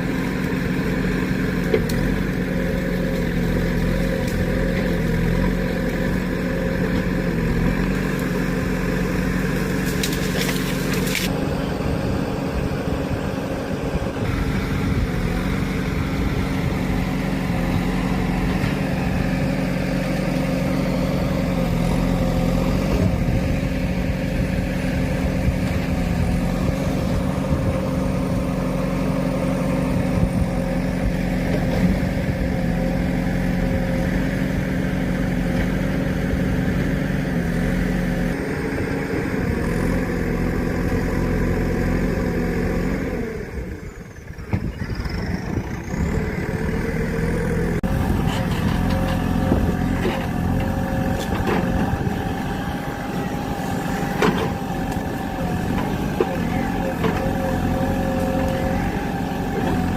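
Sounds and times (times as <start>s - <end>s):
vehicle engine droning: 0.0s - 59.9s.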